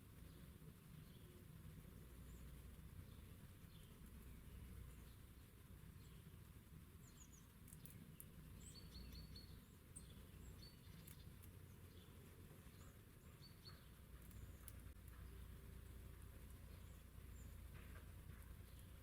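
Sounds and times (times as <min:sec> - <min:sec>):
birds chirping: 0:00.2 - 0:19.0
faint clicks: 0:07.4 - 0:09.5, 0:10.6 - 0:12.0.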